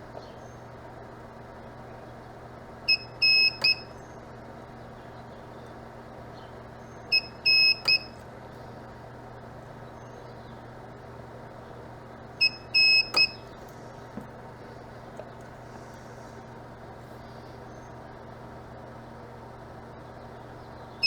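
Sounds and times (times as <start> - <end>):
steady low hum: 0.0 - 21.0
spot welder beeps: 2.9 - 4.0, 7.1 - 8.2, 12.4 - 13.6.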